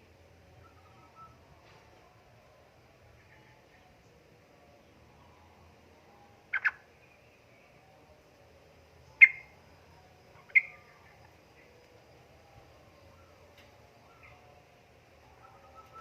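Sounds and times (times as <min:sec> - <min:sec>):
bird chirping: 0:06.5 - 0:07.8, 0:09.0 - 0:09.6, 0:10.3 - 0:11.8, 0:13.0 - 0:14.6, 0:15.2 - 0:16.0.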